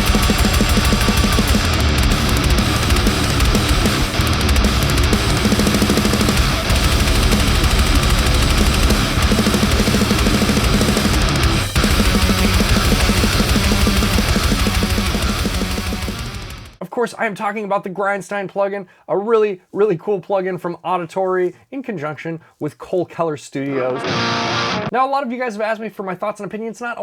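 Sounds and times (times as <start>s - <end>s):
distorted guitar riffing: 0.0s - 16.8s, 23.7s - 24.9s
drum kit: 0.0s - 16.8s.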